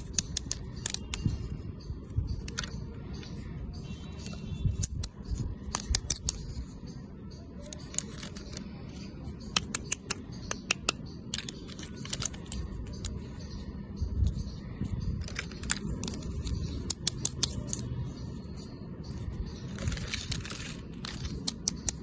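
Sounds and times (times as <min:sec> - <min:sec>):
plastic clicks and taps: 0:09.5 - 0:13.2.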